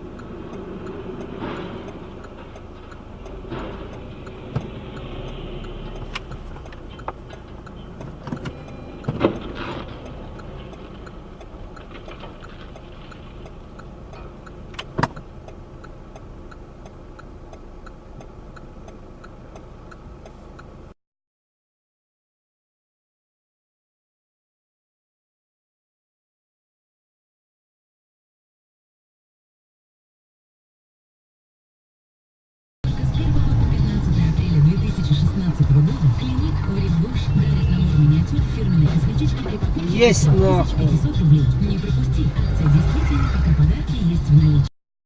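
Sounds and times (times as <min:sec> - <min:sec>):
faint regular ticking: 0:00.0 - 0:09.2, 0:09.9 - 0:21.0
vehicle road and engine noise: 0:00.0 - 0:21.0, 0:32.8 - 0:44.7.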